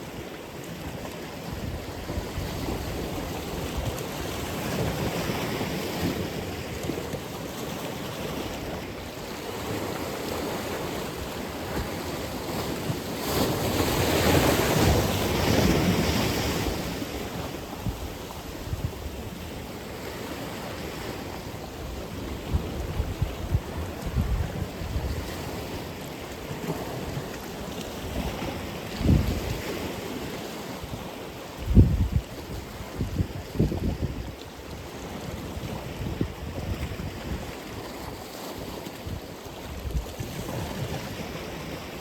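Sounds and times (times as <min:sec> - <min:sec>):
waves washing onto shore: 0:00.0 - 0:42.0
wind buffeting microphone: 0:21.8 - 0:25.9, 0:28.1 - 0:30.2, 0:31.6 - 0:38.0.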